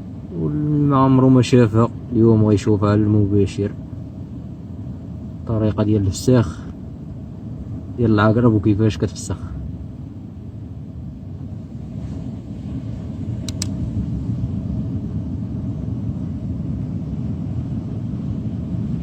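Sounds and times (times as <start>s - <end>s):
low rumble: 0.0s - 19.0s
sharp clicks: 13.4s - 13.8s.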